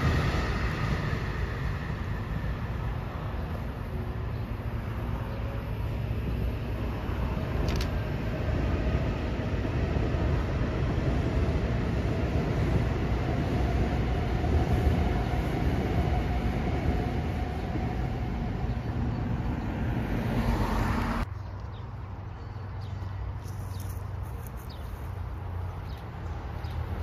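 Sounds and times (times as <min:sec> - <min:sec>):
train running over steel bridge: 0:00.0 - 0:21.3
distant train low rumble: 0:00.0 - 0:27.0.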